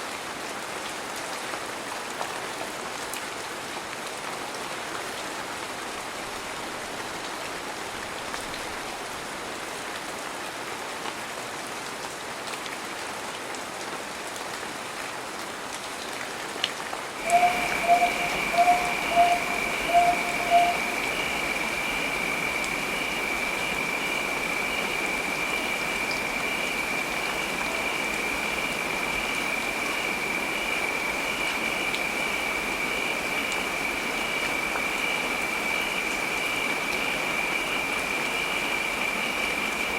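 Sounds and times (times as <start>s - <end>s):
heavy rain: 0.0s - 39.9s
steady high-pitched tone: 17.2s - 25.9s.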